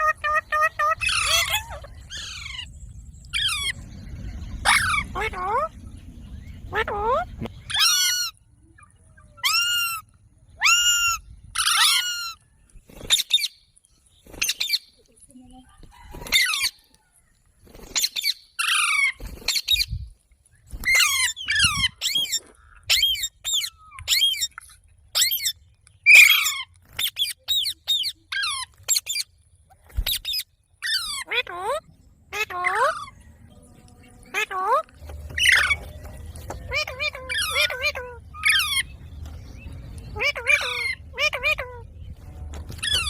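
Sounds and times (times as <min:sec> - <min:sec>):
parrot calling shrilly: 0:00.0 - 0:02.7, 0:04.6 - 0:05.7, 0:06.7 - 0:08.4, 0:09.4 - 0:12.4, 0:20.8 - 0:24.5, 0:26.1 - 0:29.2, 0:30.1 - 0:33.2, 0:34.3 - 0:35.9, 0:36.7 - 0:38.9, 0:40.2 - 0:41.8, 0:42.8 - 0:43.0.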